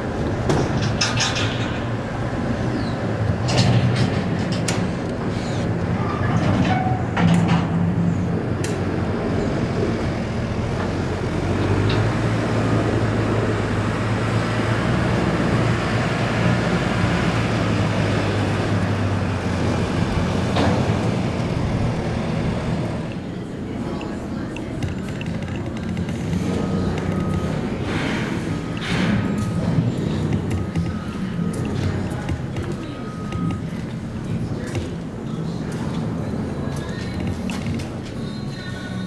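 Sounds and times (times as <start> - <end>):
heavy machinery engine drone: 0.0 - 39.0
metal knocks and clanks: 0.2 - 2.1, 3.4 - 5.0.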